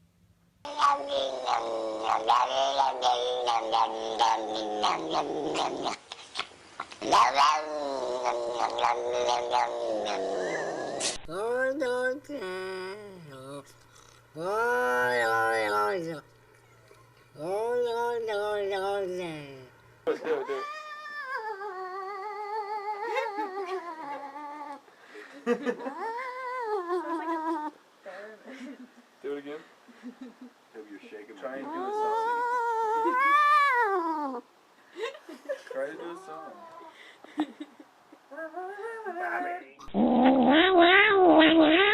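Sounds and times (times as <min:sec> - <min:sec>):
cat yowling: 0:14.4 - 0:15.9, 0:20.4 - 0:24.8, 0:31.6 - 0:34.4, 0:40.2 - 0:41.9.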